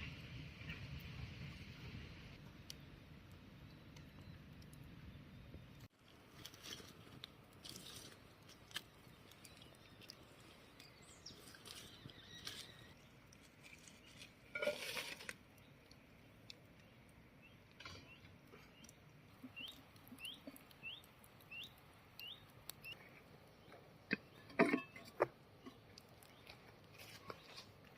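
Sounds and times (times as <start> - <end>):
small clicks and rustles: 5.8 - 27.9
bird chirping: 8.8 - 14.2, 16.8 - 27.7.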